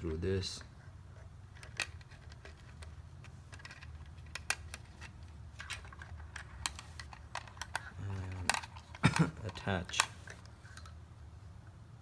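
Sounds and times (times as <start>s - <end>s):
low steady hum: 0.0s - 12.0s
plastic parts clicking: 1.5s - 11.0s.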